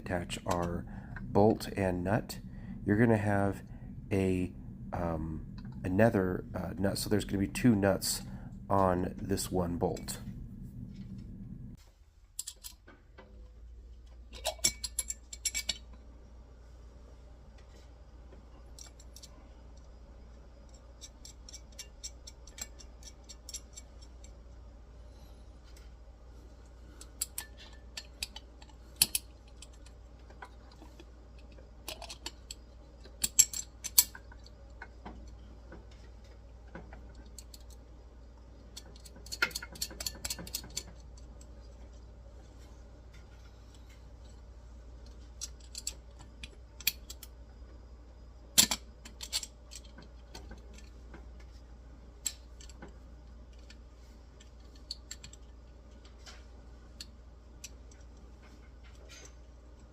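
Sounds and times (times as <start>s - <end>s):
small metal parts clicking: 12.3s - 12.8s, 14.3s - 15.9s, 18.7s - 19.9s, 20.6s - 24.4s, 26.9s - 37.8s, 38.6s - 41.9s, 45.0s - 47.4s, 48.5s - 51.0s, 53.5s - 59.9s.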